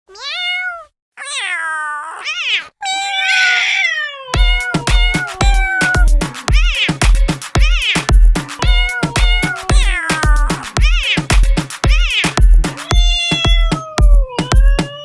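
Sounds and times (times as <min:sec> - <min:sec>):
cat meowing: 0:00.1 - 0:07.0, 0:07.6 - 0:15.0
electronic music with bass beat: 0:04.4 - 0:15.0.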